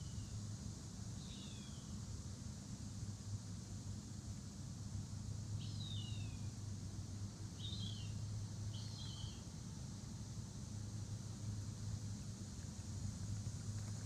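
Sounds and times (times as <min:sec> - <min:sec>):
songbird chirping: 0:07.6 - 0:09.4.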